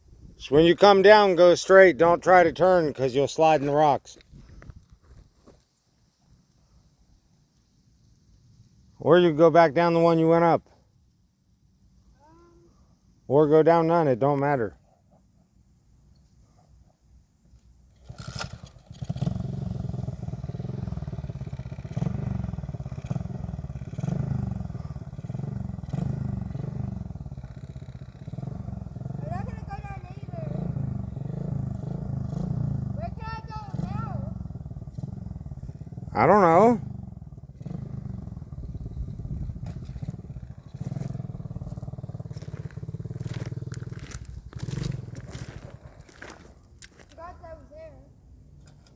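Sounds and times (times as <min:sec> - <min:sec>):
motorbike engine revving: 0:17.9 - 0:46.4.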